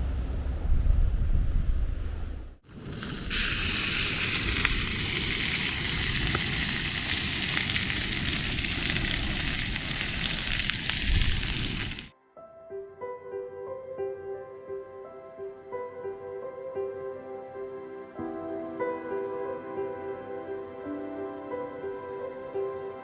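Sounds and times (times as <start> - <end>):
sea surf washing over rocks: 2.7 - 12.1.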